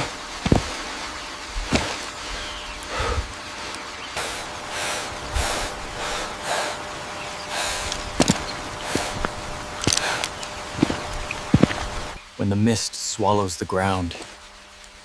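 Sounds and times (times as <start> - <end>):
dull thumps: 0.0 - 0.8, 1.6 - 2.1, 7.9 - 12.2
person breathing hard: 2.3 - 3.4, 4.2 - 10.4.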